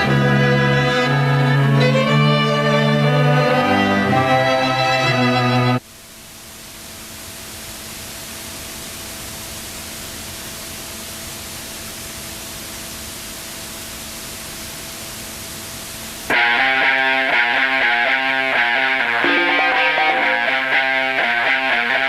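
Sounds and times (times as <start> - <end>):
music: 0.0 - 5.8, 16.3 - 22.0
faint steady hum: 0.0 - 22.0.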